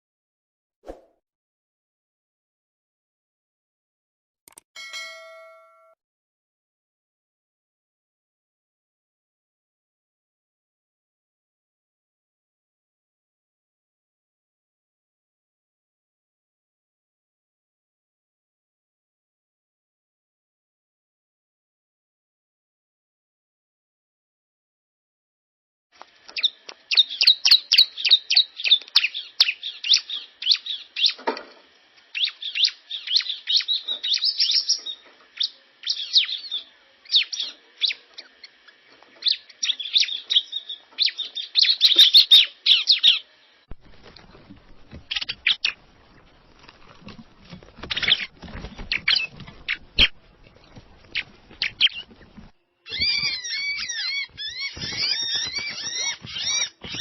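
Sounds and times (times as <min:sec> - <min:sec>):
birds chirping and calling: 0:26.3 - 0:31.2, 0:32.1 - 0:43.3, 0:44.4 - 0:45.8, 0:47.6 - 0:57.0.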